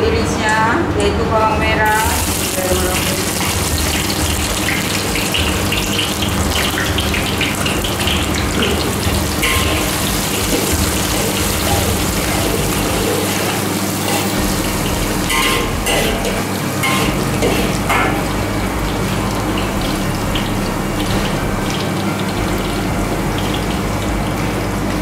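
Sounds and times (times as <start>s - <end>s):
shallots sizzling in hot oil: 2.0s - 18.4s.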